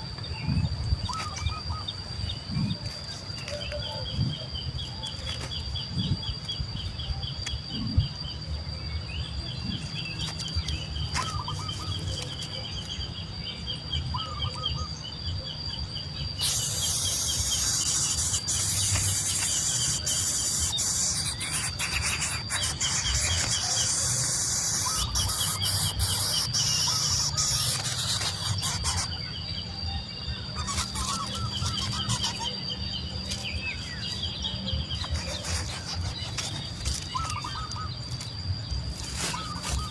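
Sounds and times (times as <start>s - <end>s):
nestling birds chirping: 0.0s - 39.9s
loud hiss: 16.4s - 29.0s.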